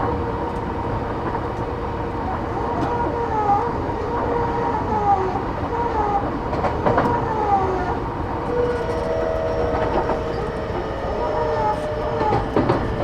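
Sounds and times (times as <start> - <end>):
electric train rumble: 0.0 - 13.0
wheels clacking on rail joints: 6.4 - 13.0.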